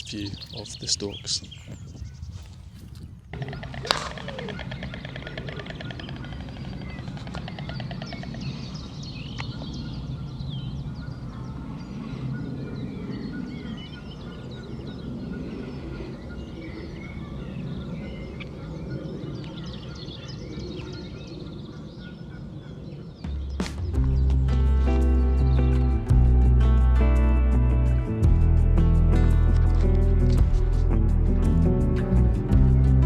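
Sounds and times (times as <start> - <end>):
birds chirping and whistling: 0.0 - 26.1
bird rattling trill: 3.4 - 8.8
steady low rumble: 23.4 - 33.0.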